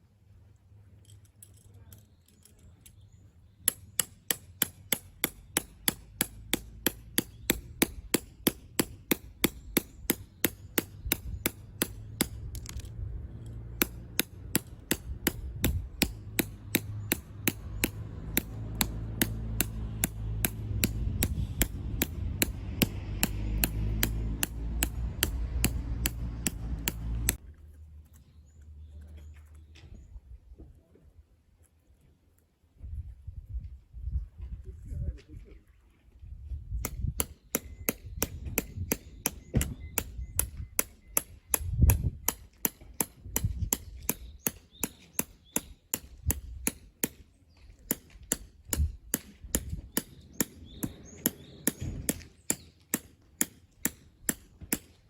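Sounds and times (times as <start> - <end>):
hammer driving tent peg: 3.7 - 12.7, 13.8 - 27.4
low hum: 5.3 - 29.7.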